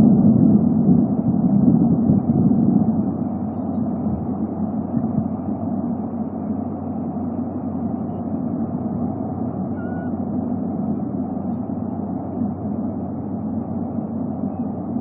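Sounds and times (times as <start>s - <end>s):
constant low hum: 0.0s - 15.0s
low rumbling background noise: 0.0s - 15.0s
faint high whistle: 9.7s - 10.2s.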